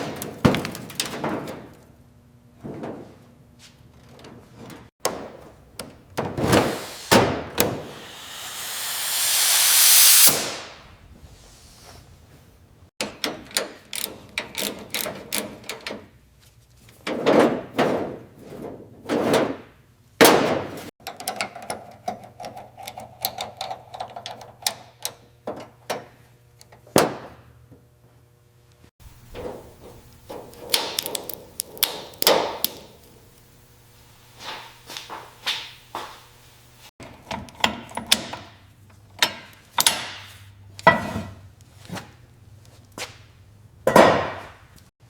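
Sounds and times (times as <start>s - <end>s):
steady hum: 6.4s - 11.1s
whooshing sweeps: 6.4s - 11.8s.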